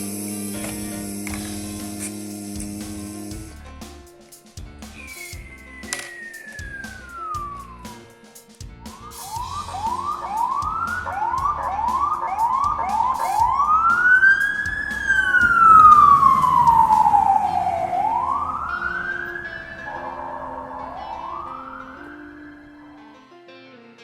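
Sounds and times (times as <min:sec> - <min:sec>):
emergency vehicle siren: 0:05.0 - 0:08.1, 0:08.8 - 0:23.0.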